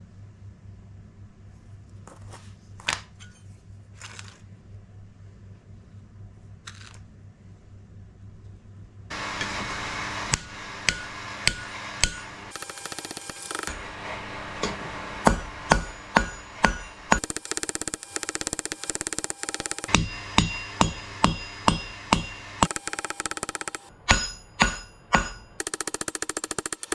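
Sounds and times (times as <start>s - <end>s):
hammer striking steel on anvil: 9.1s - 26.9s.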